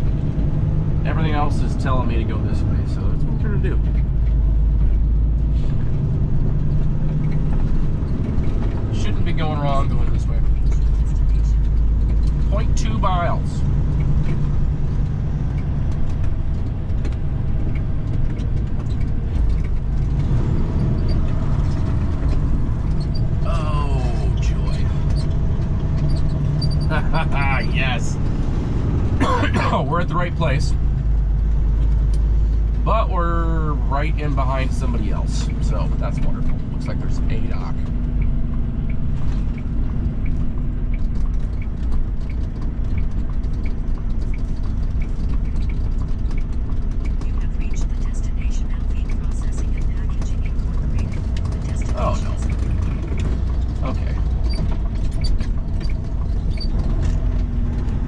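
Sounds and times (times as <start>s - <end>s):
truck diesel engine running: 0.0s - 58.0s
light rattles and clicks: 6.3s - 27.4s, 34.1s - 58.0s.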